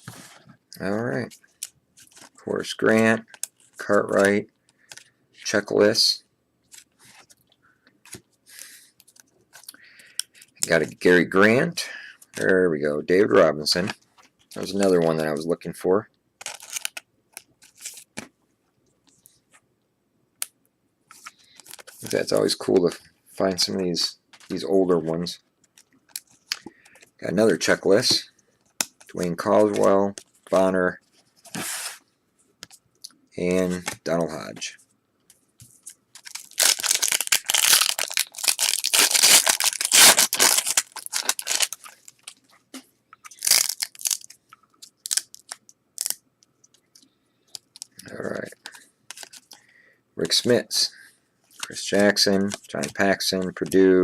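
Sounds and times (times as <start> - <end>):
plastic wrapper tearing and crinkling: 16.4 - 18.1, 35.8 - 42.4, 43.2 - 46.2, 49.1 - 49.6
cards sliding and clicking: 31.4 - 32.0.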